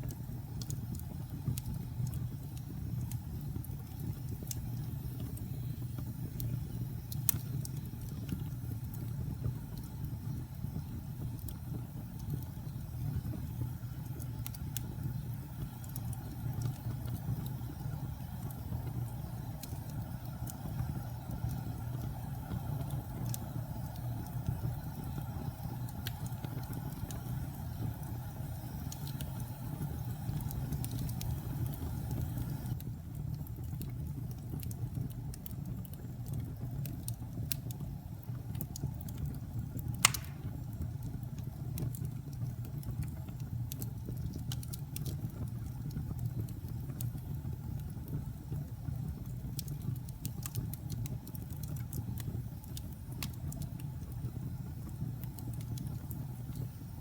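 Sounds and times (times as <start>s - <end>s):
fire crackling: 0.0s - 57.0s
fire flames rumbling: 0.0s - 57.0s
fire sharp pop: 40.0s - 40.8s.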